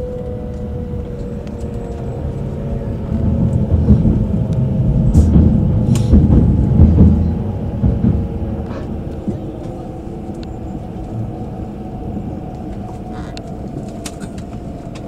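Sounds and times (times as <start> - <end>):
train interior low rumble: 0.0 - 15.0.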